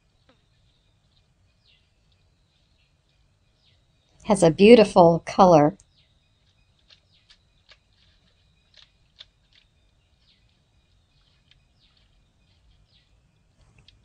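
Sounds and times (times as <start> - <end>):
faint bird chirps: 5.8 - 14.0.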